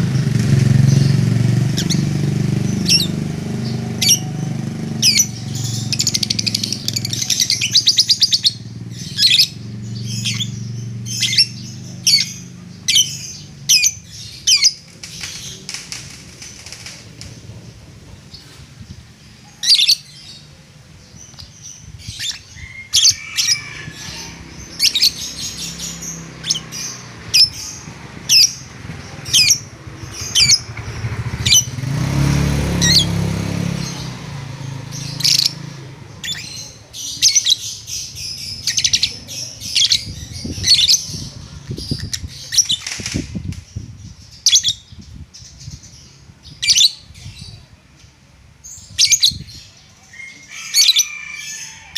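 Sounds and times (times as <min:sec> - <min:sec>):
bird chirping and squawking: 0:00.0 - 0:17.5, 0:18.2 - 0:20.5, 0:21.1 - 0:47.7, 0:48.6 - 0:51.9
low rumble: 0:37.7 - 0:46.1.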